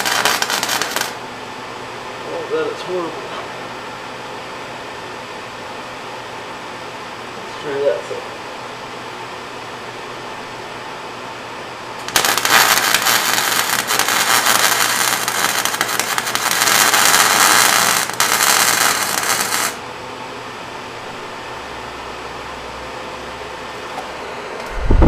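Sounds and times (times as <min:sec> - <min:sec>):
welding arc crackling: 0:00.0 - 0:01.2, 0:12.0 - 0:19.8
fan running: 0:00.0 - 0:25.0.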